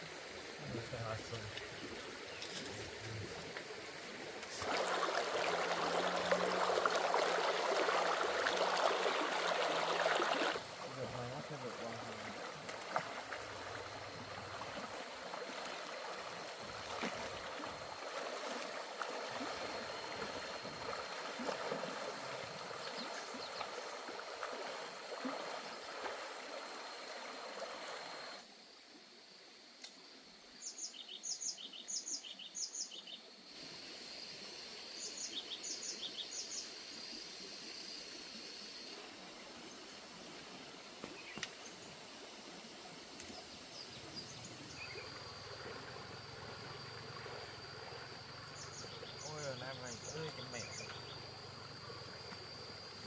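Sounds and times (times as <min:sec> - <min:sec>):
water pouring: 0:04.5 - 0:10.6
bird chirping: 0:48.5 - 0:51.2.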